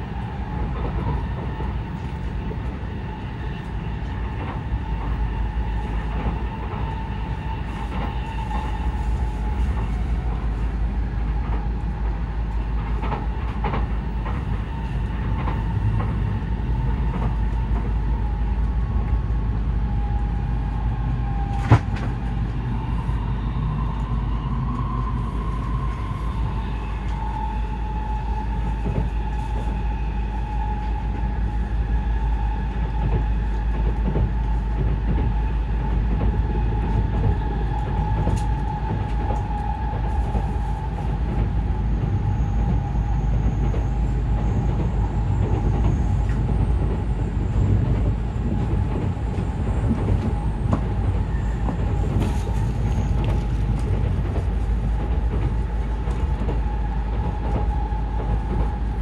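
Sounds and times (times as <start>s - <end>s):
train running rumble: 0.0s - 59.0s.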